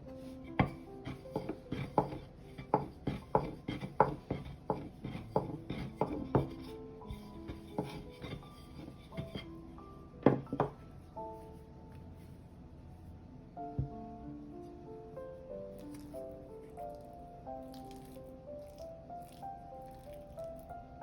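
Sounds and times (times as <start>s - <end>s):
soft background music: 0.0s - 21.0s.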